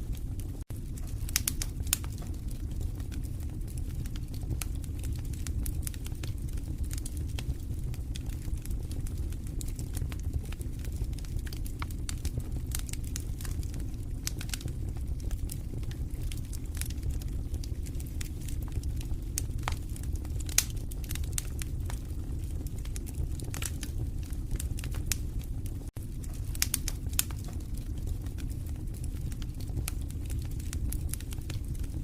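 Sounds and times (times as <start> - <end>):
fire crackling and popping: 0.0 - 32.0
low rumble of flames: 0.0 - 32.0.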